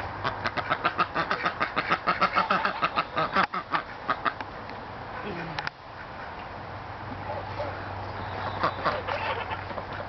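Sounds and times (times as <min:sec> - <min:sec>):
birds calling rapidly: 0:00.1 - 0:04.5, 0:07.2 - 0:10.0.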